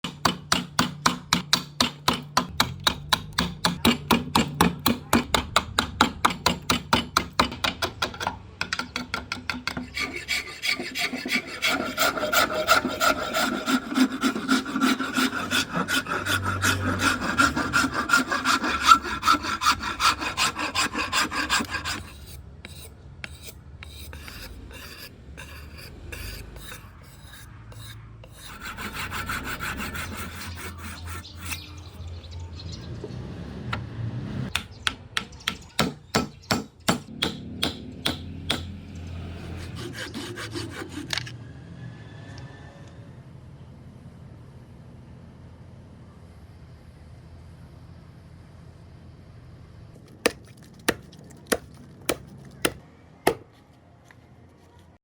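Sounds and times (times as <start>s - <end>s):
rasp filing wood: 9.6s - 31.7s, 39.4s - 41.3s, 50.2s - 53.4s.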